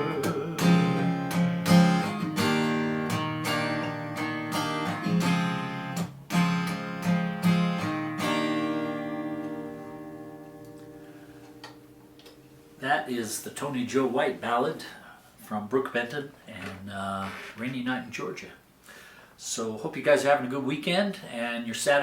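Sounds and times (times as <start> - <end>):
acoustic guitar strumming chords: 0.0 - 13.1.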